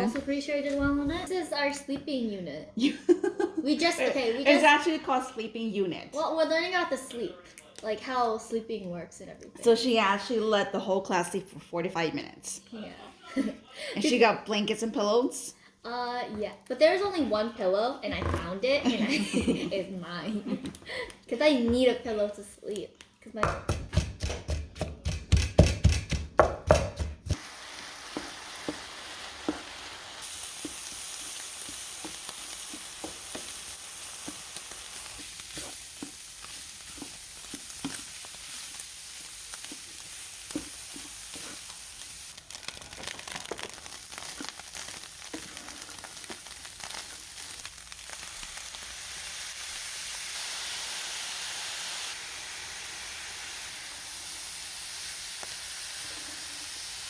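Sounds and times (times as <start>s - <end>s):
utensil stirring and clicking on pan: 23.7s - 57.0s
food sizzling in a hot pan: 27.3s - 57.0s.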